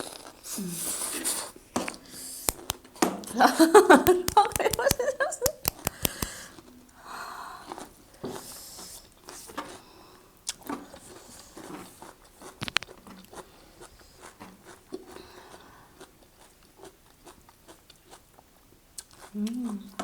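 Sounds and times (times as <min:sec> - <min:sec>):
chewing and biting food: 0:00.0 - 0:02.8, 0:04.0 - 0:06.4, 0:10.5 - 0:19.7
sharp clicks: 0:02.5 - 0:02.8, 0:03.9 - 0:06.4, 0:12.6 - 0:13.0.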